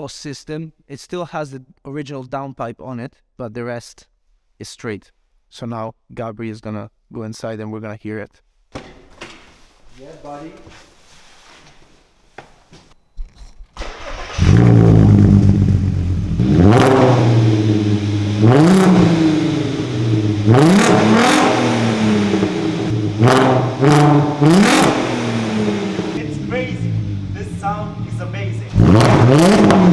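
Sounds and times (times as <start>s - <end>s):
car engine starting: 13.8s - 29.9s
engine revving in sharp blips: 13.8s - 29.9s.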